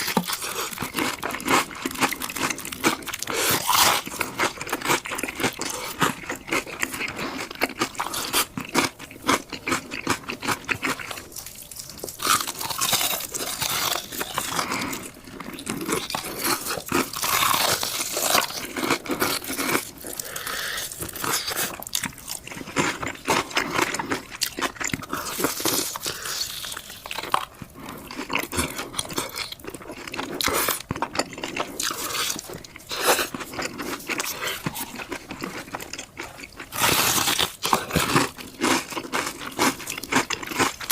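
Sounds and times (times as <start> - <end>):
crunchy food chewing: 0.0 - 40.9.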